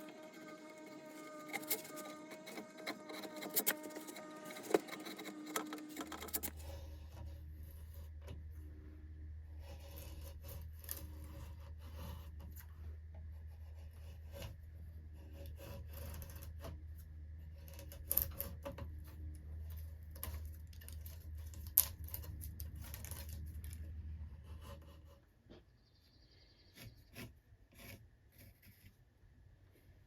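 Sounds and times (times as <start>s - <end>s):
hand tools scraping wood: 0.0s - 8.4s, 9.6s - 16.8s, 20.2s - 25.6s, 26.7s - 29.1s.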